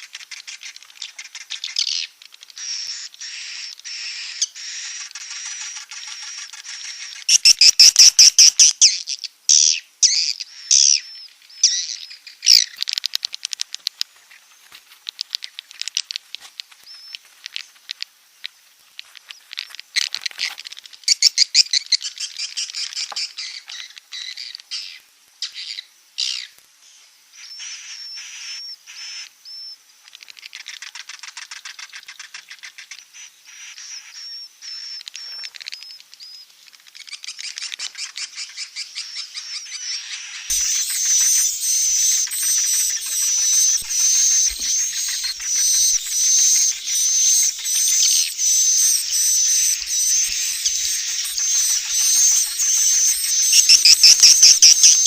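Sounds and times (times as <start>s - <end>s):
swiftlets chittering trills: 40.5s - 55.0s.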